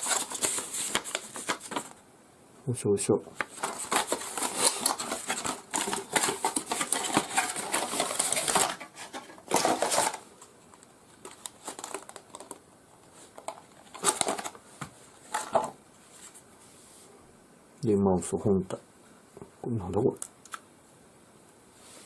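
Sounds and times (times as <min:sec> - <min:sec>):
packaging rustling and crinkling: 0:00.0 - 0:02.0, 0:03.4 - 0:16.4.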